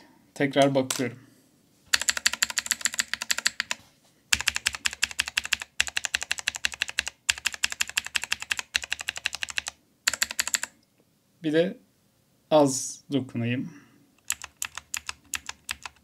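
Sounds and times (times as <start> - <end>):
clicky keyboard keys pressed: 14.2 - 16.0.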